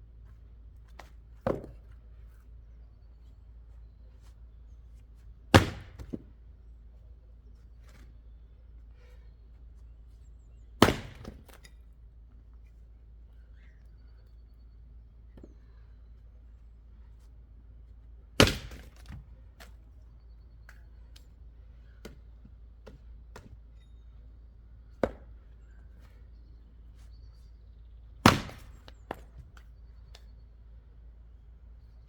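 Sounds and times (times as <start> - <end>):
axe chopping wood: 1.0 - 1.9, 5.5 - 6.3, 10.8 - 11.7, 18.4 - 19.8, 25.0 - 25.3, 28.2 - 29.4
small wooden knocks: 1.0 - 2.0.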